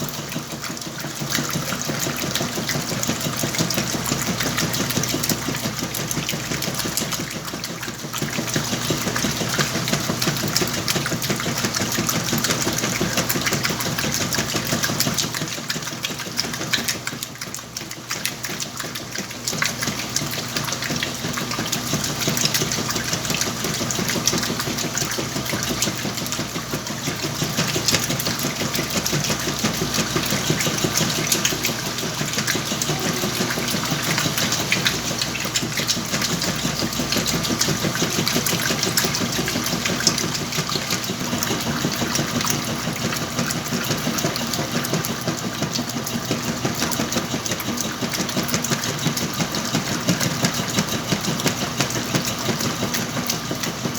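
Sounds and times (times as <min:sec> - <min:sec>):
washing machine motor hum: 0:00.0 - 0:53.9.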